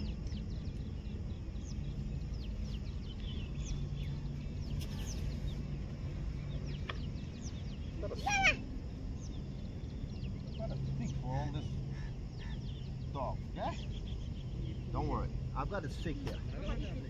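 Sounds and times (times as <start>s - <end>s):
small birds chirping: 0.0s - 17.0s
steady low hum: 0.0s - 17.0s.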